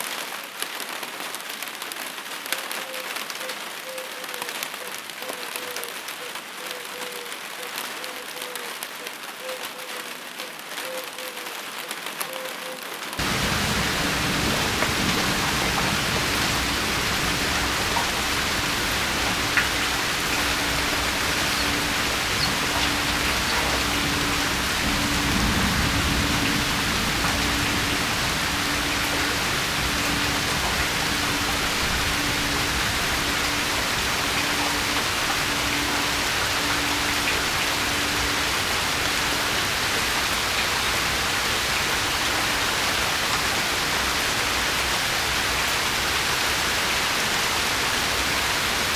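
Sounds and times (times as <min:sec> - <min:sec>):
raindrop ticks: 0:13.2 - 0:43.5
steady rain hiss: 0:13.2 - 0:48.9.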